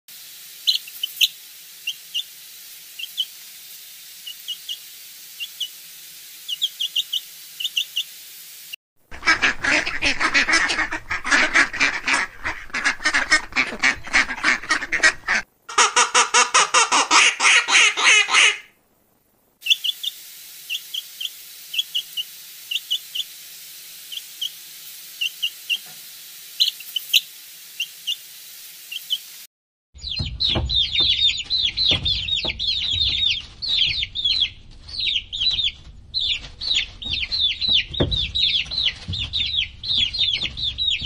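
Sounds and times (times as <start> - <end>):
ducklings calling in chorus: 0.6 - 2.3, 3.0 - 3.3, 6.5 - 8.0, 9.1 - 18.7, 19.6 - 23.3, 30.0 - 41.0
chicks peeping: 0.6 - 2.4, 3.0 - 3.4, 6.4 - 8.1, 9.2 - 18.6, 19.6 - 23.4, 24.1 - 24.6, 25.2 - 25.9, 26.6 - 28.2, 28.9 - 29.3, 30.0 - 41.0.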